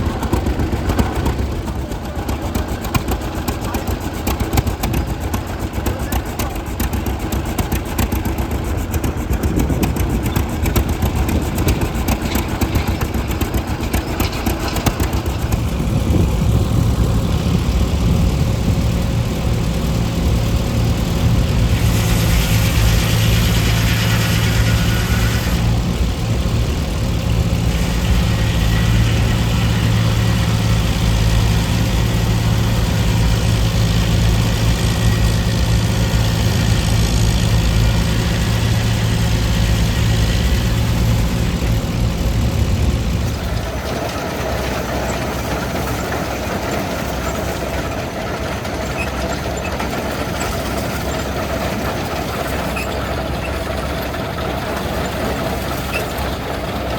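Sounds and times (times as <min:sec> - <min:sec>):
engine ticking and idling: 0:00.0 - 0:56.9
hiss: 0:21.6 - 0:25.8, 0:27.7 - 0:32.1.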